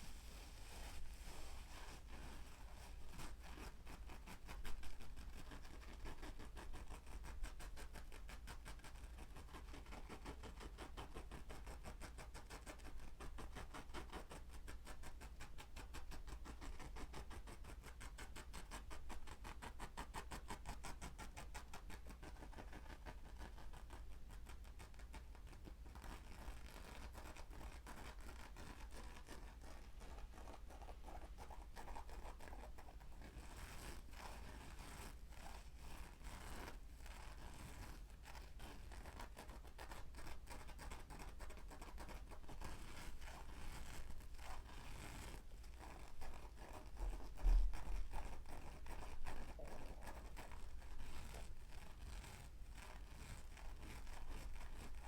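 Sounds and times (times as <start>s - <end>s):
fine scratching and scraping: 0.0s - 3.7s, 41.5s - 55.0s.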